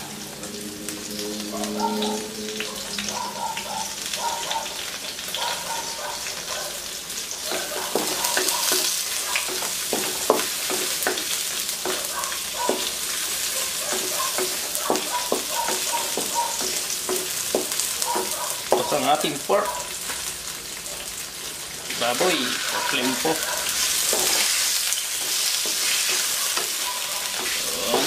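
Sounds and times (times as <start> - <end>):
vegetables sizzling in oil: 0.0 - 28.0
spatula scraping and knocking pan: 7.5 - 19.4, 22.1 - 28.0.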